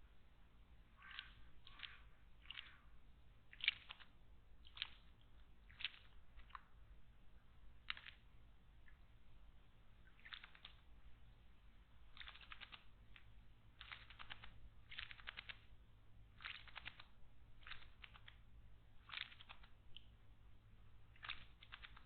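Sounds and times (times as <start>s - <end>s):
bird ticking clicks: 1.0s - 6.7s, 10.0s - 10.9s, 12.1s - 15.7s, 16.4s - 20.1s, 21.1s - 22.0s.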